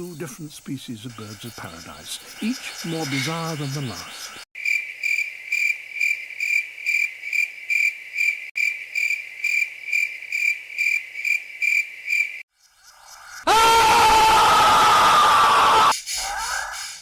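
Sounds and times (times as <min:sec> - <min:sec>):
cricket chirping: 0:00.0 - 0:13.5.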